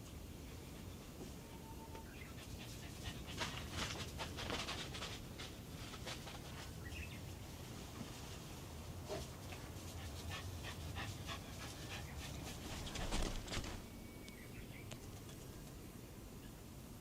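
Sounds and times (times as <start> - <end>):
dog panting: 2.3 - 4.4, 9.1 - 13.8.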